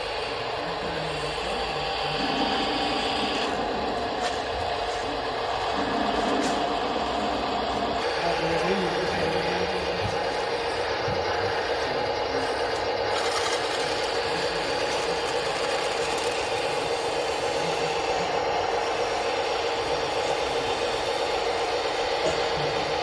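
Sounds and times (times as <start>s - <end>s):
electric motors whining: 0.0s - 23.0s.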